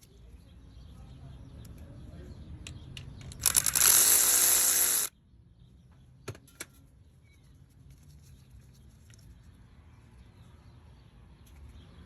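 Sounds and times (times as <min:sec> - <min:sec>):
sharp clicks: 0:02.7 - 0:05.1
power tool motor whirring: 0:03.4 - 0:05.1.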